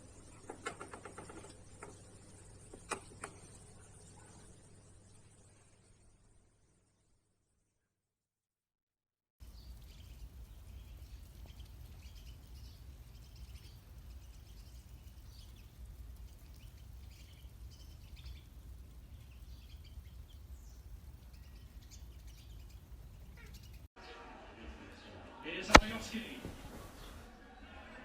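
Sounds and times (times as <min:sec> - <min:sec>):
small birds chirping: 0:00.0 - 0:06.2, 0:09.4 - 0:24.0.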